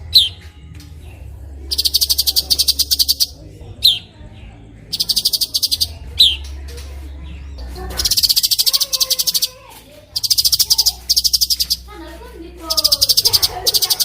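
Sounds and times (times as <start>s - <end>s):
bird warbling: 1.7s - 4.1s, 4.8s - 6.4s, 7.7s - 11.9s, 12.6s - 14.0s
songbird trilling: 1.7s - 4.2s, 4.8s - 12.0s, 12.6s - 14.0s.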